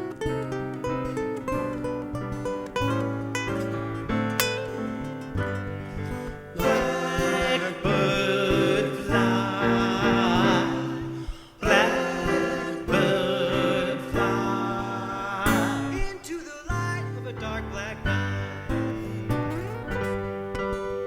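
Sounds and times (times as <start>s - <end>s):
acoustic guitar plucking: 0.0s - 21.0s
wordless singing: 6.3s - 19.6s.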